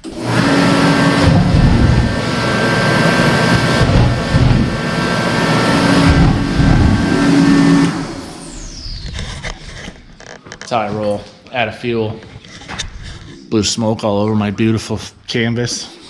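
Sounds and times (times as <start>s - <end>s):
diesel engine revving: 0.0s - 9.2s.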